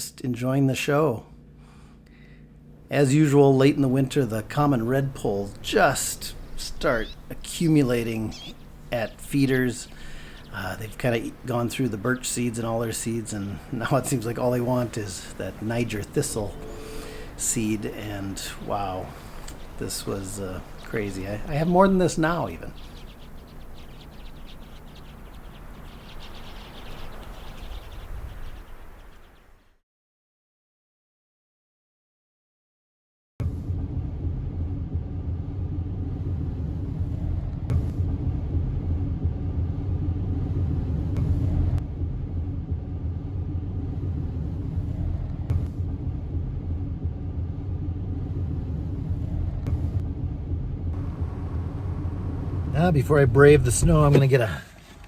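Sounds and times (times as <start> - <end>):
low rumble: 2.7 - 29.2, 33.4 - 55.0
flock of birds twittering: 4.0 - 29.7.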